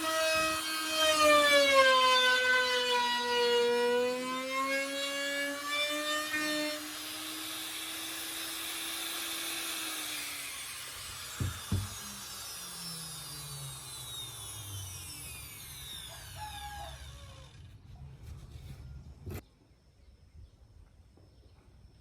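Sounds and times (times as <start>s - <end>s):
power tool motor whining: 0.0s - 19.4s
motor hum winding down: 6.9s - 19.4s
sharp knocks: 11.4s - 11.9s.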